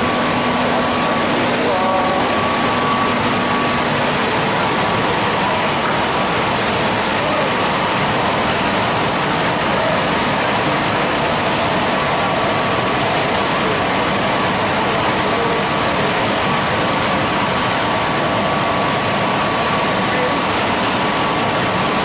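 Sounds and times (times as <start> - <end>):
faint high whine: 0.0 - 7.7.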